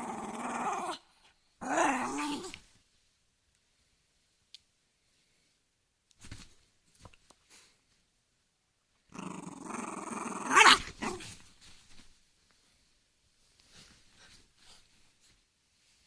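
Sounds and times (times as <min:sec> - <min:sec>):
dog growling: 0:00.0 - 0:01.0, 0:01.6 - 0:02.6, 0:09.1 - 0:11.3.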